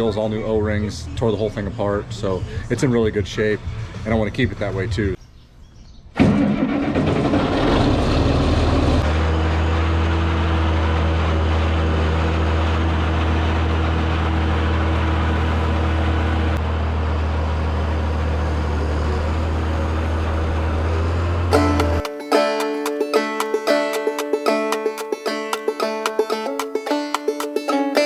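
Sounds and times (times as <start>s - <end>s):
tractor diesel engine idling: 21.5s - 22.8s.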